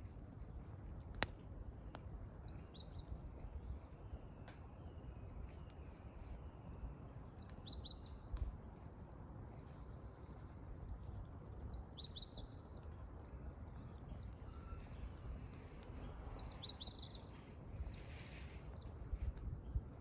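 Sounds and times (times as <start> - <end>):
firewood crackling: 0.0 - 20.0
songbird chirping: 2.0 - 10.5, 11.5 - 19.0.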